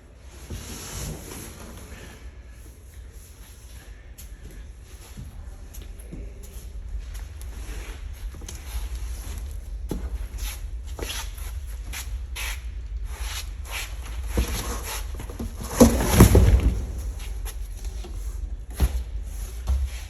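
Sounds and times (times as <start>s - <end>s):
scraping clatter: 14.2s - 17.9s.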